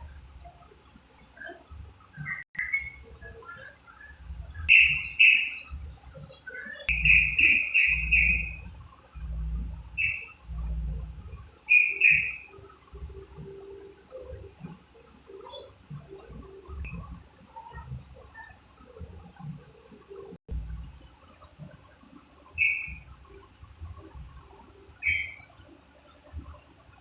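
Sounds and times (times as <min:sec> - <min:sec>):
bird chirping calls: 0:01.2 - 0:20.3, 0:22.5 - 0:23.4, 0:24.8 - 0:25.6.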